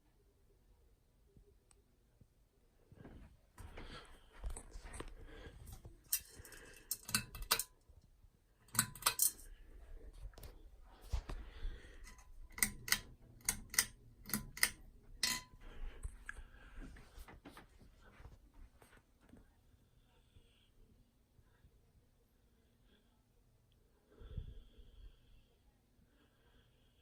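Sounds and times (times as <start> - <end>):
pull-chain switch clicks: 8.7 - 9.4, 12.0 - 15.4.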